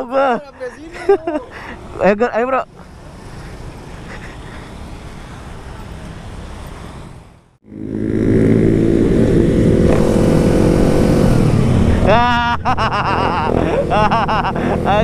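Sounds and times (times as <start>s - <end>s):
motorcycles rumbling: 0.0s - 15.0s
wind: 0.0s - 15.0s
motorcycle engine at steady revs: 7.6s - 12.1s, 13.5s - 15.0s.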